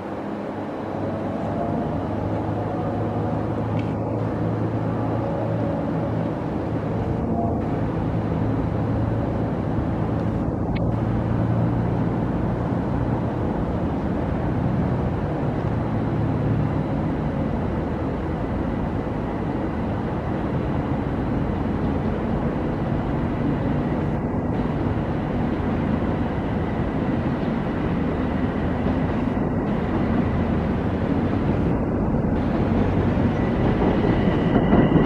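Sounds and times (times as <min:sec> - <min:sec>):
train rumble: 0:00.0 - 0:35.0
low hum: 0:22.3 - 0:35.0.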